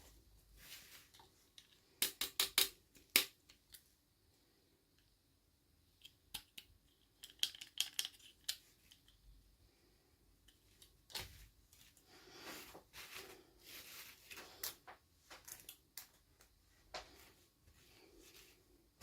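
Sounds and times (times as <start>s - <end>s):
toy packaging clicks: 6.3s - 9.2s.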